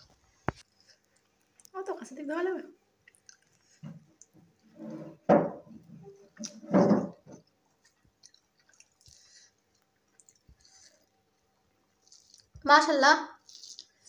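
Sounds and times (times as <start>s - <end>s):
person chewing: 3.0s - 4.4s, 7.8s - 12.6s, 13.4s - 14.0s.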